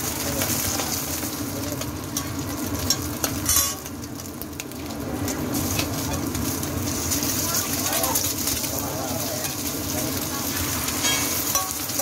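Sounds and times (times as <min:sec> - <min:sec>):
food sizzling on griddle: 0:00.0 - 0:12.0
metal spatula clinking on griddle: 0:01.8 - 0:03.9, 0:09.4 - 0:09.7, 0:10.9 - 0:12.0.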